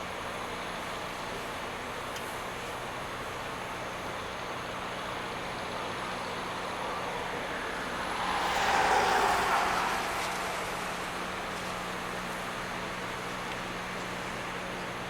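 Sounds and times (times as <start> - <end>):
vehicle passing by: 5.8 - 13.6.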